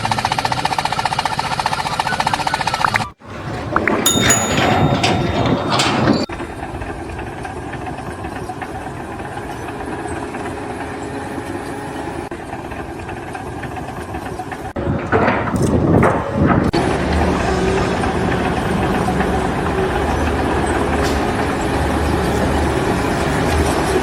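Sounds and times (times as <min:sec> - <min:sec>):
busy noise: 0:03.3 - 0:06.3.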